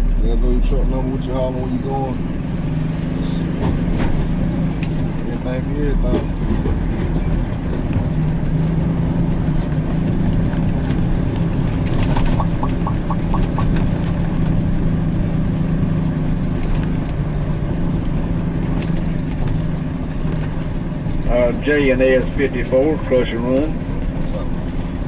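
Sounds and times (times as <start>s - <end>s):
short beeps: 12.4s - 13.7s.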